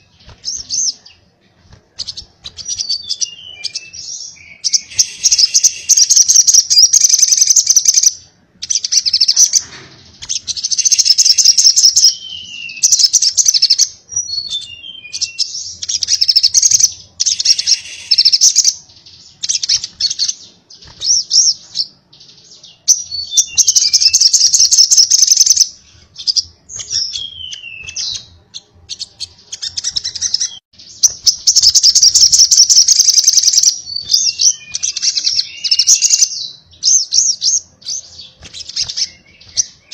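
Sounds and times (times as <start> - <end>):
bird singing buzzing trills: 2.0 - 8.1.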